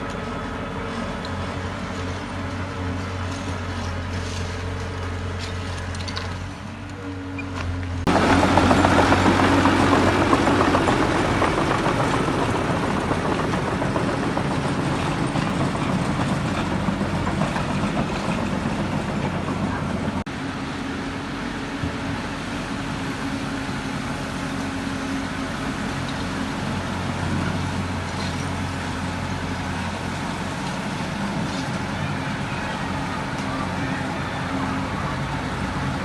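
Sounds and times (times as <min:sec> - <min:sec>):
heavy machinery low hum: 0:00.0 - 0:36.0
loud rough mechanical noise: 0:00.0 - 0:36.0.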